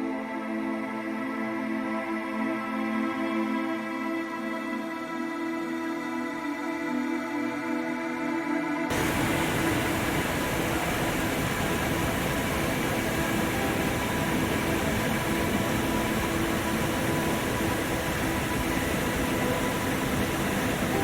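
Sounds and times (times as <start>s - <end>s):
waterfall rushing: 8.9s - 21.0s.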